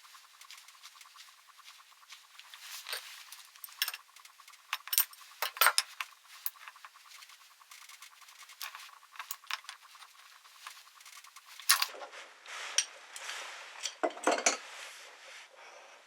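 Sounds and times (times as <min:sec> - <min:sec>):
scraping and rustling: 0:00.0 - 0:15.2
small metal tools clinking: 0:02.6 - 0:07.0, 0:07.7 - 0:11.9.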